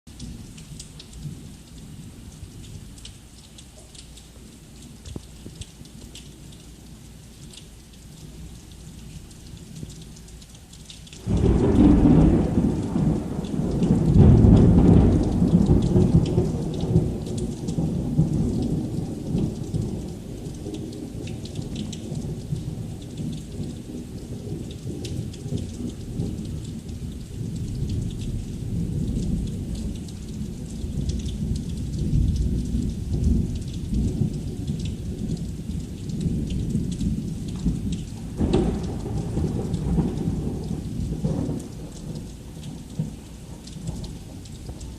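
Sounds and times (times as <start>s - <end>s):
heavy rain hissing: 3.2s - 27.5s, 32.5s - 44.9s
thunder rumbling: 11.2s - 44.9s.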